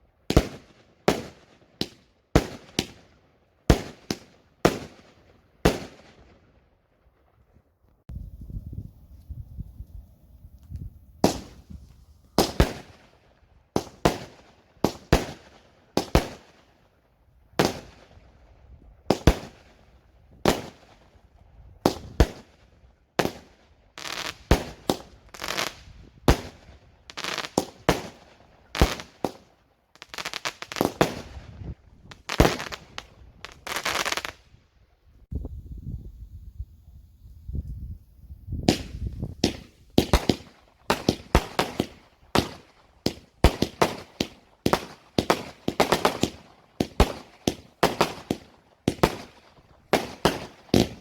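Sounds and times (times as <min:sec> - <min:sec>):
fireworks crackling: 0:23.2 - 0:34.6, 0:38.6 - 0:51.0
fireworks bangs: 0:38.6 - 0:51.0.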